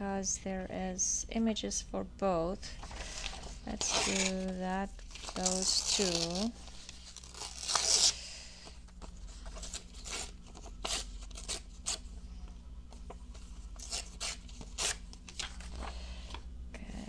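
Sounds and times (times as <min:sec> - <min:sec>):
paper rustling: 0:02.7 - 0:12.1, 0:12.9 - 0:16.4.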